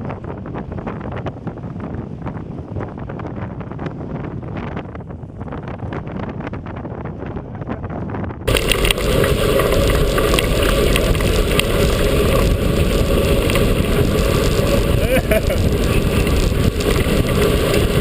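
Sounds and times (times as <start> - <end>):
wind rushing over microphone: 0.0 - 18.0
mountain bike rattling over trail: 8.5 - 18.0.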